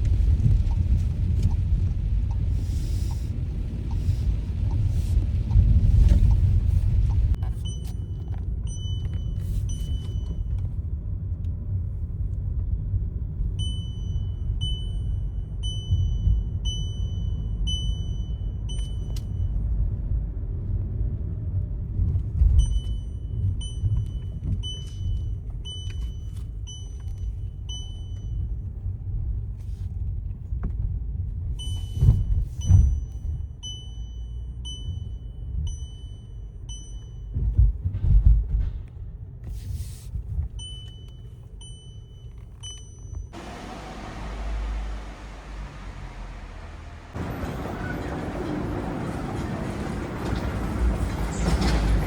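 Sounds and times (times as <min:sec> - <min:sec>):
steady low rumble: 0:00.0 - 0:18.6.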